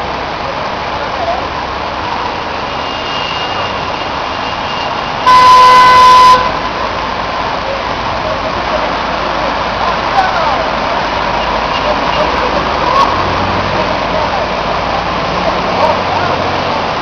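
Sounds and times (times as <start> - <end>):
street and traffic noise: 0.0 - 17.0
vehicle horn: 4.4 - 6.7.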